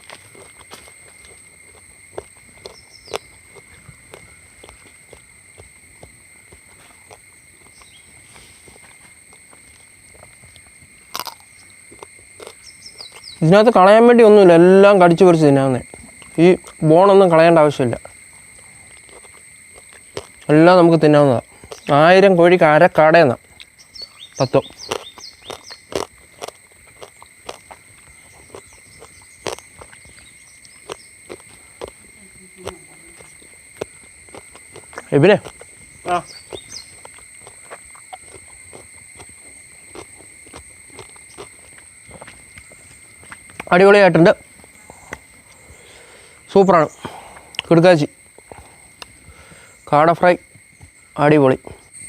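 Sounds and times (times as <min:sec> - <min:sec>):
person chewing crunchy food: 0:00.0 - 0:13.4, 0:15.8 - 0:16.8, 0:18.0 - 0:20.6, 0:21.4 - 0:22.0, 0:23.4 - 0:43.8, 0:44.4 - 0:46.1
insects droning: 0:00.0 - 0:52.0.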